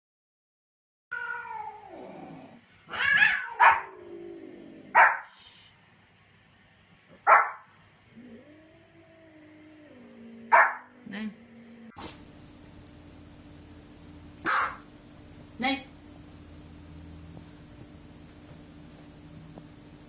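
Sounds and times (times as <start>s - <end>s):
dog wavering growl: 1.4s - 5.0s, 8.1s - 12.0s
dog barking: 3.0s - 4.0s, 4.9s - 5.3s, 7.2s - 7.7s, 10.5s - 10.9s, 14.4s - 14.9s.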